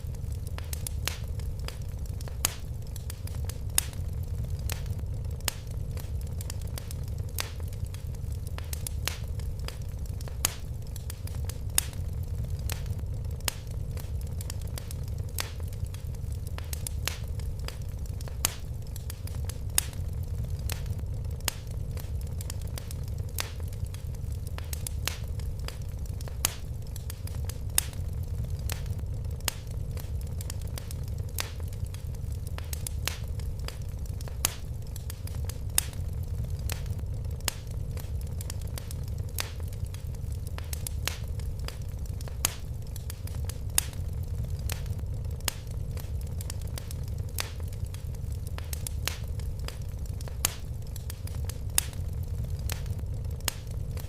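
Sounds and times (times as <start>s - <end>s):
fire crackling in fireplace: 0.0s - 54.0s.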